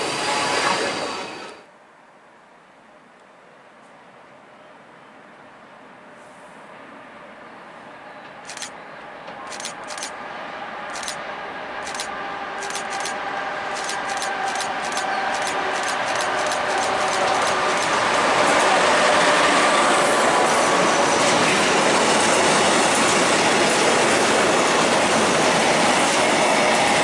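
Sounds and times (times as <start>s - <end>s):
freight train approaching: 0.0s - 1.7s, 6.7s - 27.0s
wheels clicking over rail joints: 11.8s - 18.5s.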